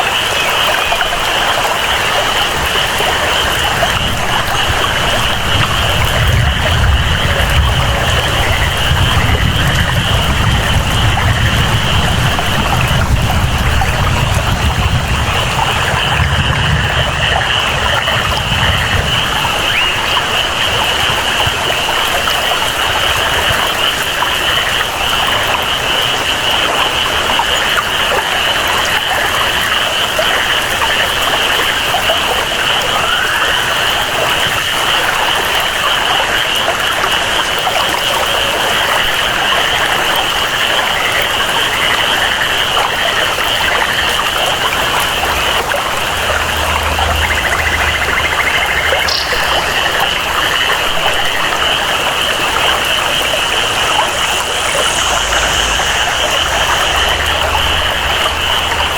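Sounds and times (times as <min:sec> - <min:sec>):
flowing water: 0:00.0 - 0:58.9
frogs chorus: 0:00.0 - 0:58.9
steady rainfall: 0:00.0 - 0:58.9
low rumble: 0:44.8 - 0:58.9.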